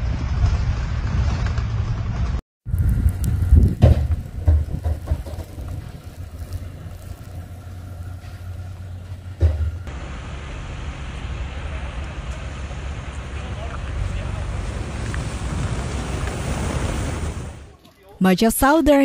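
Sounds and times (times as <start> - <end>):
motor vehicle rumble: 0.0 - 17.8
knocks and thumps: 3.6 - 5.9, 9.3 - 9.9.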